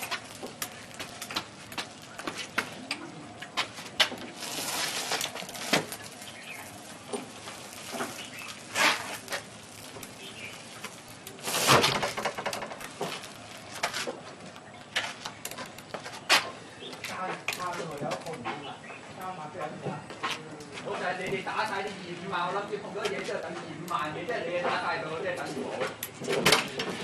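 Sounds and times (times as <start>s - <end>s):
scraping or rustling noise: 3.6s - 17.5s.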